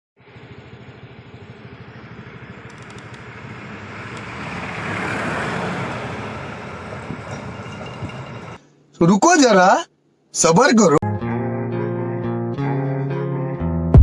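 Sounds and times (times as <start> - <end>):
vehicle engine passing by: 0.2 - 8.6.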